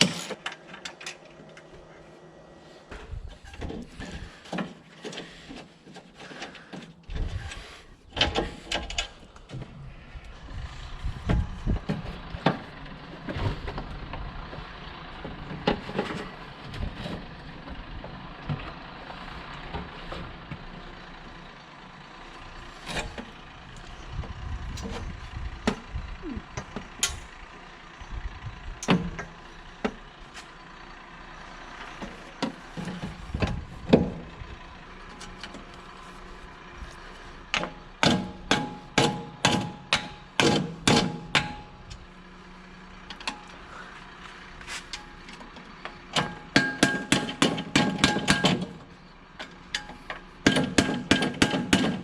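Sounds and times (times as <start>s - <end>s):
hand tools clanking on metal: 26.5s - 27.3s, 37.5s - 42.0s, 44.7s - 52.0s.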